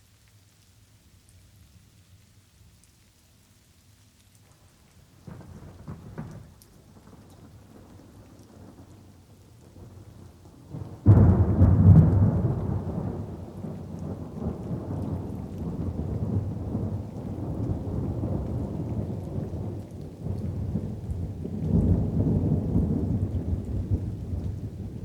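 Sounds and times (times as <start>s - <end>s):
light rain: 0.0s - 25.0s
thunder rumbling: 9.8s - 25.0s
loud thunderclap: 10.8s - 25.0s.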